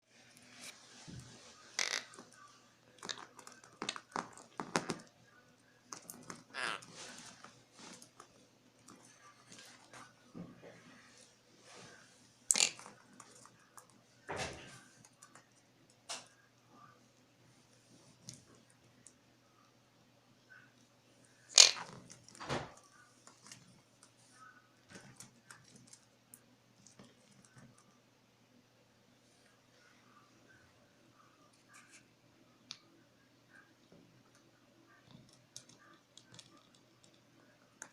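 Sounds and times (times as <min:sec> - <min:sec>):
parrot pecking hard object: 0:01.8 - 0:02.2, 0:03.0 - 0:05.1, 0:21.5 - 0:22.1
parrot raspy call: 0:06.5 - 0:06.9.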